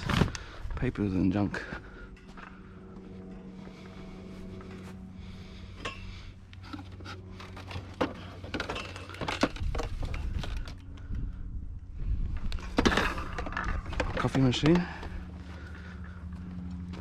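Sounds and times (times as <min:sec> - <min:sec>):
steady low hum: 0:00.0 - 0:17.0
junk items clinking and knocking: 0:05.8 - 0:11.1, 0:12.4 - 0:17.0.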